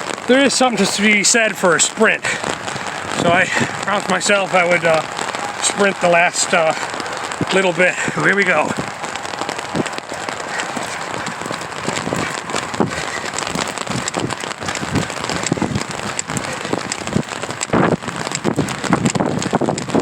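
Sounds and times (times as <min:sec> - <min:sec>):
rain pattering on an umbrella: 0:00.0 - 0:20.0.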